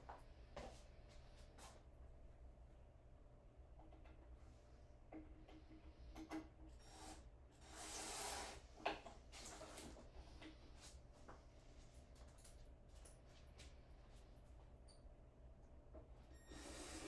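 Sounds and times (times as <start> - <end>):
low steady hum: 0.0 - 7.7, 8.8 - 16.4.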